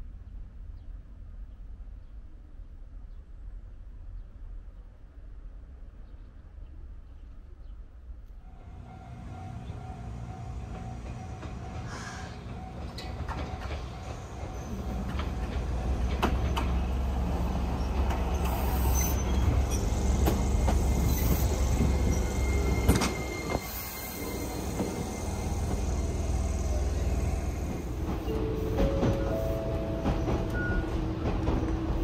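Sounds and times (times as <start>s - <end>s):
electric train rumbling: 8.4s - 32.0s.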